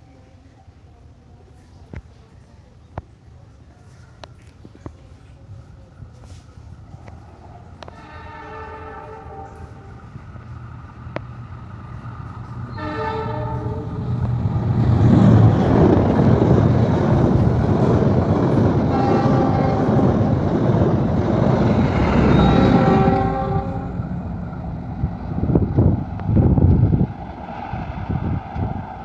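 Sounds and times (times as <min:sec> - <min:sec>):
train rumble: 0:00.1 - 0:29.0
train horn blasts: 0:07.8 - 0:10.2, 0:12.7 - 0:14.2, 0:18.9 - 0:20.3, 0:21.9 - 0:24.2.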